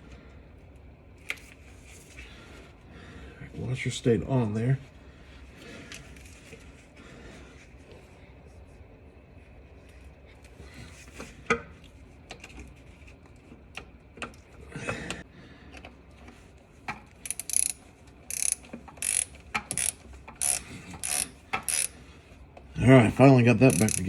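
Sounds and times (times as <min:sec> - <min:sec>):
socket ratchet clicking: 0:17.2 - 0:21.9, 0:23.7 - 0:24.0.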